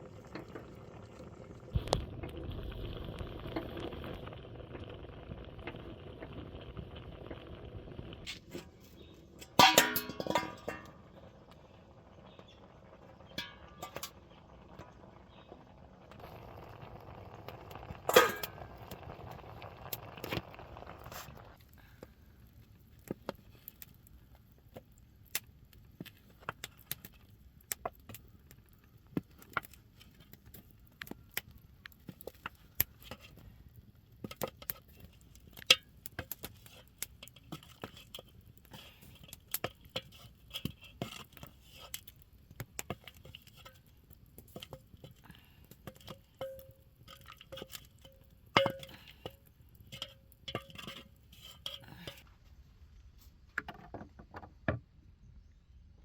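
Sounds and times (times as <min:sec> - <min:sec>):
kitchen utensils and dishes clinking: 0:09.4 - 0:11.0.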